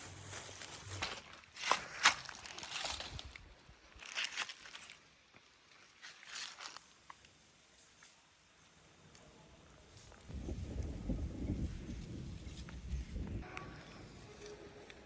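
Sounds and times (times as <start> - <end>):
rustling or scraping: 0.0 - 5.0, 5.7 - 6.9.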